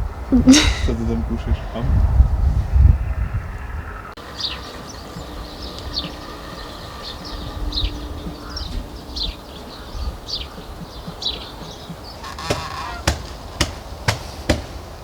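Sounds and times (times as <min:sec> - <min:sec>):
honk-like bird calls: 0:04.2 - 0:14.0
sharp knocks: 0:10.6 - 0:15.0.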